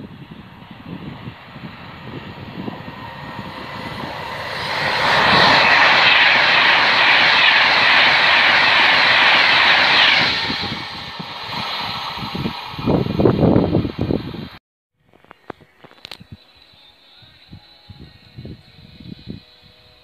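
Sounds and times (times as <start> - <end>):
express train passing at speed: 0.0 - 14.6.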